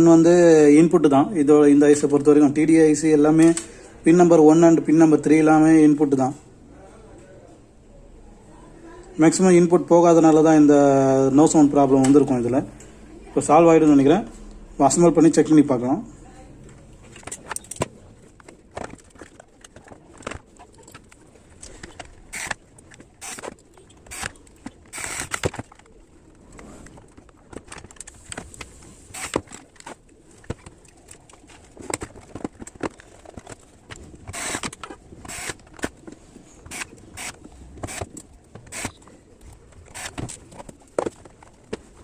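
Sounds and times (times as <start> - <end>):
clicks and knocks of speaker parts: 16.6 - 42.0.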